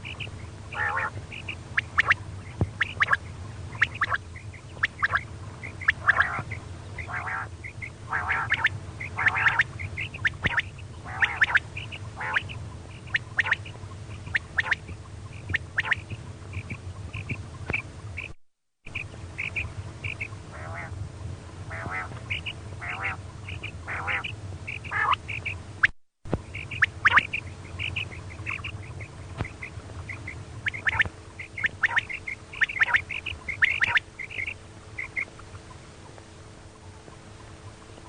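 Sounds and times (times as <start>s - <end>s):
quail calls: 0.0s - 21.0s, 21.7s - 25.6s, 26.4s - 35.8s
steady low hum: 0.0s - 38.0s.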